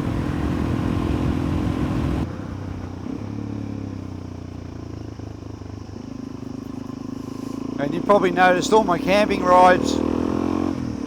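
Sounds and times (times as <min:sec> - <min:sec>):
wind noise: 0:00.0 - 0:03.2
motorcycle engine running: 0:00.0 - 0:11.0.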